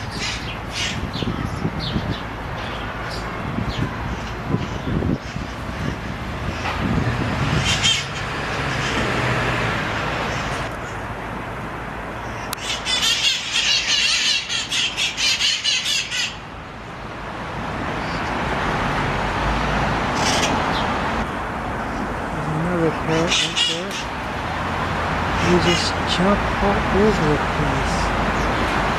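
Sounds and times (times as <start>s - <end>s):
parakeets squawking: 0.0s - 6.7s, 7.4s - 9.2s, 12.2s - 16.5s, 20.2s - 20.9s, 22.8s - 24.2s
city traffic: 0.0s - 28.9s.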